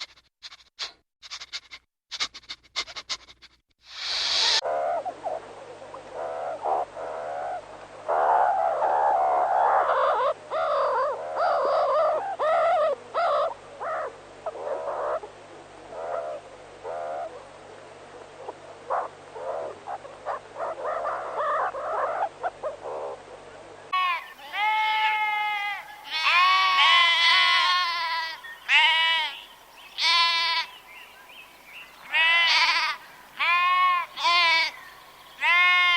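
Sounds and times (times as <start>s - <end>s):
meerkats calling: 0.4s - 3.6s, 15.9s - 17.5s, 18.4s - 23.2s, 23.9s - 30.9s, 32.0s - 35.9s.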